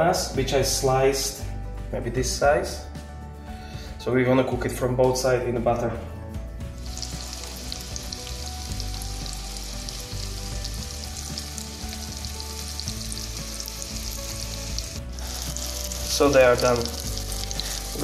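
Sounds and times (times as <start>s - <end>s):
banana slices sizzling in butter: 6.8s - 18.0s.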